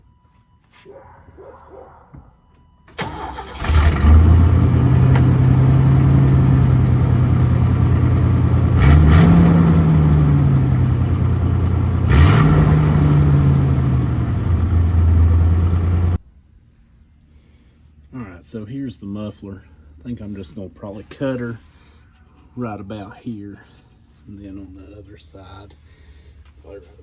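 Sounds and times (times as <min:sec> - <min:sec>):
car engine starting and idling: 0:02.9 - 0:16.2
engine revving: 0:03.0 - 0:16.2.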